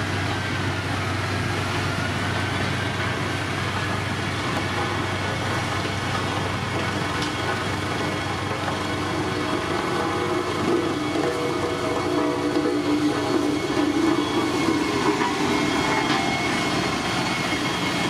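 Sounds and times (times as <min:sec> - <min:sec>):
diesel engine of heavy machinery: 0:00.0 - 0:18.0.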